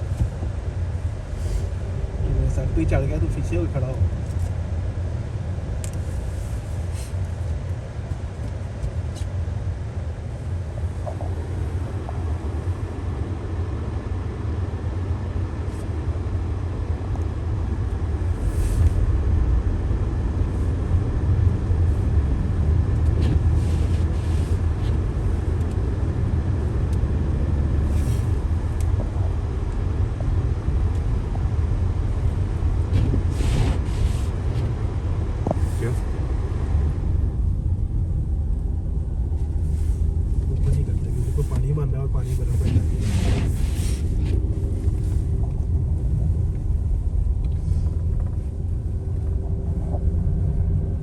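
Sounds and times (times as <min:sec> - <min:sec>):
car rumbling on snowy road: 0:00.0 - 0:51.0
short hissing swishes: 0:33.3 - 0:34.4, 0:42.9 - 0:44.1.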